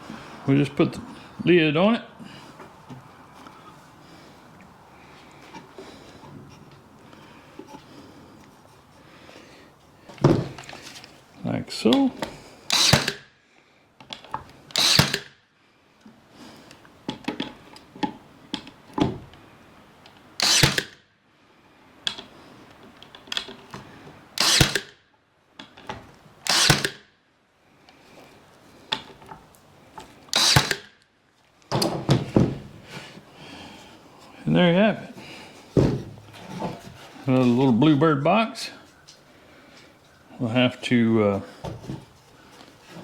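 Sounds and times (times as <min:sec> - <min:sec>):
handling knocks: 0:10.2 - 0:10.7, 0:31.7 - 0:32.8, 0:35.7 - 0:37.0
power drill driving screws: 0:12.7 - 0:13.2, 0:14.7 - 0:15.3, 0:20.4 - 0:21.0, 0:24.4 - 0:24.9, 0:26.4 - 0:27.0, 0:30.3 - 0:30.9.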